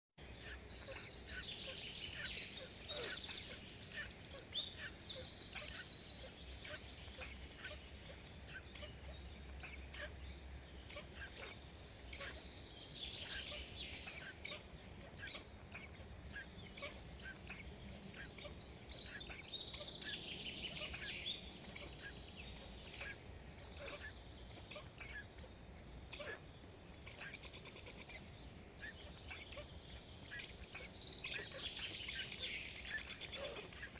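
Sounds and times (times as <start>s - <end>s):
birds chirping: 0.2s - 33.9s
rapid trilled bird calls: 10.8s - 25.5s, 26.1s - 33.9s.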